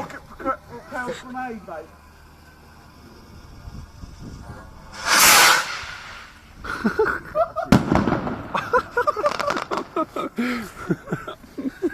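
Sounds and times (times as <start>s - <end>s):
firework rocket launching hiss: 0.9s - 10.1s
sharp crack: 4.9s - 6.6s, 7.7s - 10.0s
people laughing: 6.6s - 7.8s, 8.5s - 11.9s.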